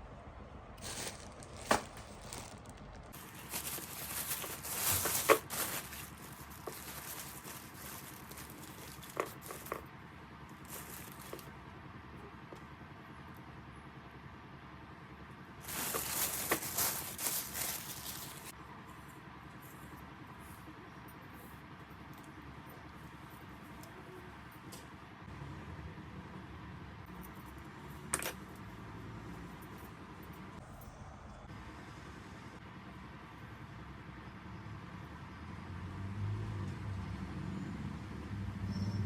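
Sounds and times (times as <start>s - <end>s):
quiet handling noise: 0.8s - 9.9s
rustling and crinkling: 0.8s - 9.9s, 10.5s - 11.6s, 15.6s - 18.6s.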